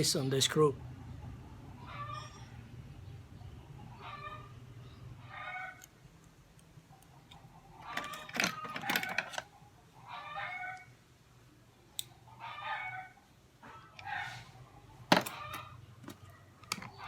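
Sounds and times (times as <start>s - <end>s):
chickens calling: 3.6s - 5.8s, 7.0s - 11.0s, 12.2s - 15.9s
small metal tools clattering: 7.8s - 9.5s, 15.1s - 17.0s.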